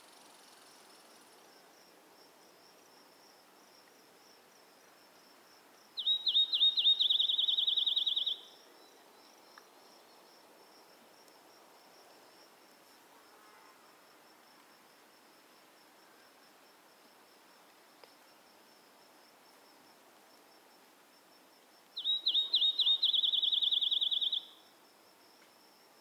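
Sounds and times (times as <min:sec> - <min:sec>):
crickets chirping: 0:00.0 - 0:26.0
songbird singing trill: 0:05.9 - 0:10.5, 0:21.9 - 0:24.8.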